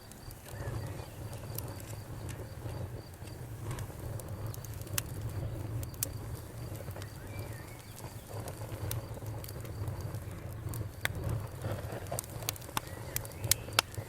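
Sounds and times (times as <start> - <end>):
bonfire crackling and popping: 0.0 - 14.0
faint cricket chirping: 0.0 - 14.0
low fire rumble: 0.0 - 14.0.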